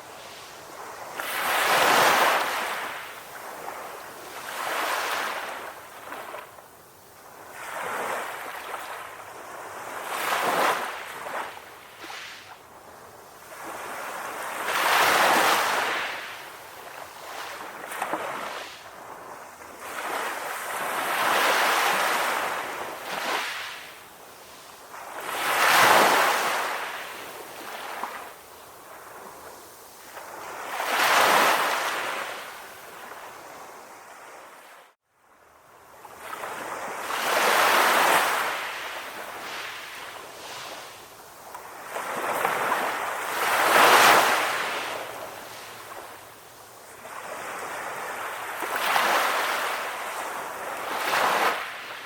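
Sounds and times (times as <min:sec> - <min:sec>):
sea waves washing onto shore: 0:36.1 - 0:52.0.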